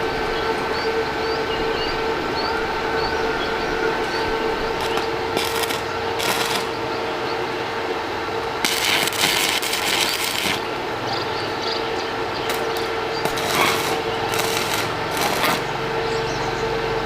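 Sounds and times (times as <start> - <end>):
welding machine hum: 3.9 - 16.4
arc welding crackling hiss: 4.7 - 6.8, 8.5 - 11.0, 12.4 - 15.8.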